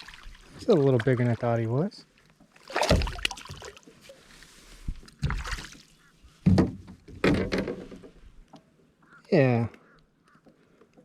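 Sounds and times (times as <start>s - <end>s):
water sloshing: 0.0s - 8.5s
bumps and knocks on kayak: 6.4s - 8.2s.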